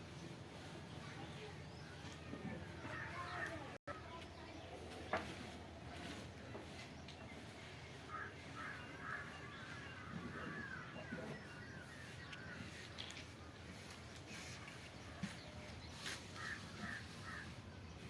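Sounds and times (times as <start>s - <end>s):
steady background noise: 0.0s - 18.0s
faint bird calls: 7.7s - 18.0s.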